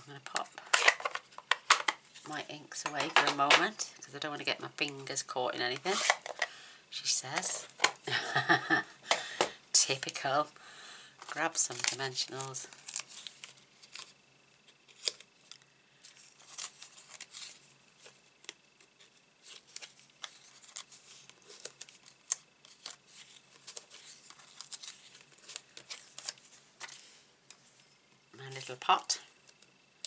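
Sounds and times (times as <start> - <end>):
paper crinkling: 11.2 - 27.8.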